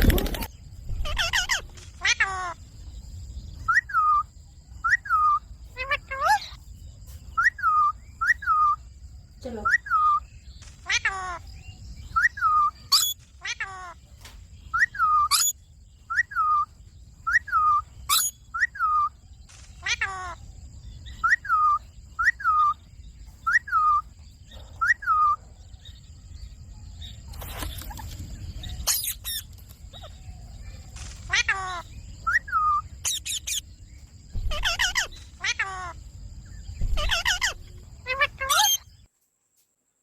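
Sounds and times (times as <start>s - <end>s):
parrot shrill screeches: 0.9s - 2.6s, 12.2s - 14.0s, 14.7s - 16.6s, 17.3s - 19.1s, 28.8s - 30.1s, 31.3s - 33.6s, 34.4s - 36.0s, 36.8s - 38.8s
parrot whistled calls: 3.6s - 6.6s, 7.4s - 8.8s, 9.6s - 10.2s, 12.0s - 14.0s, 14.7s - 19.2s, 21.2s - 22.8s, 23.4s - 24.1s, 24.8s - 25.4s, 31.3s - 33.6s, 34.4s - 36.0s, 36.8s - 38.8s.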